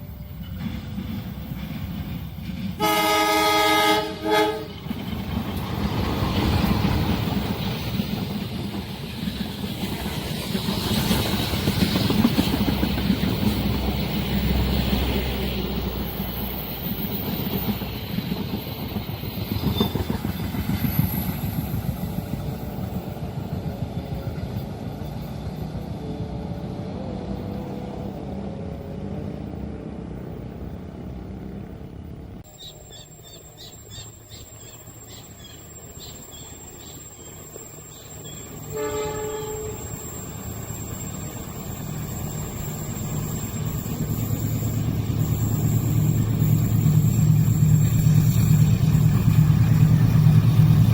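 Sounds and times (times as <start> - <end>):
train wheels clattering and rumbling: 0.0 - 28.3, 40.0 - 50.9
train horn blast: 2.8 - 4.8, 38.6 - 40.2.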